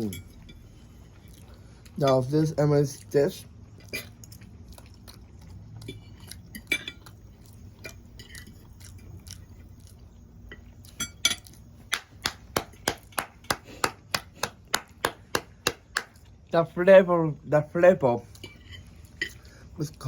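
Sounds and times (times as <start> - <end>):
cutlery clinking on a plate: 10.5 - 11.6.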